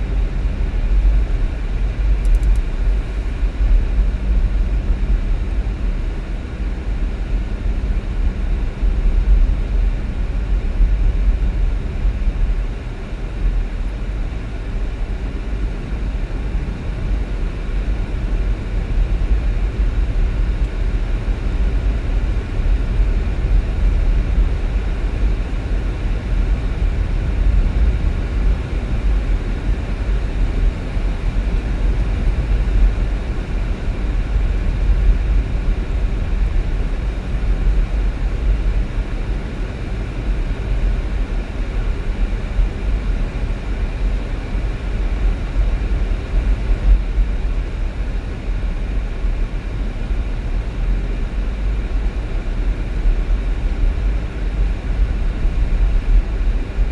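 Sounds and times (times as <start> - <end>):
car driving on road: 16.1 - 40.9.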